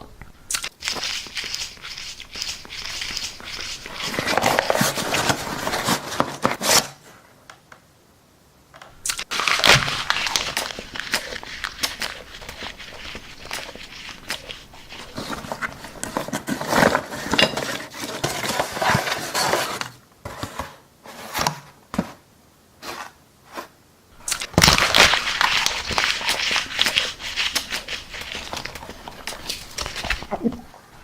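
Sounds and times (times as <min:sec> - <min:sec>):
cardboard being chewed: 0:00.5 - 0:05.9, 0:09.0 - 0:16.4, 0:24.2 - 0:31.0.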